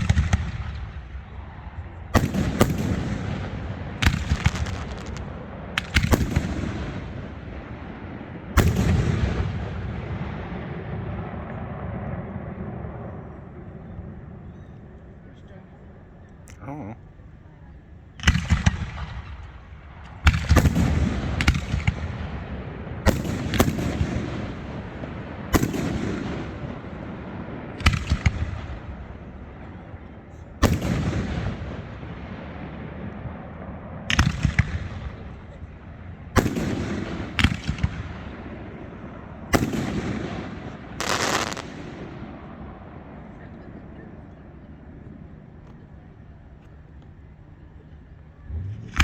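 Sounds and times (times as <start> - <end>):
fireworks exploding: 0.0 - 12.9, 18.2 - 44.3.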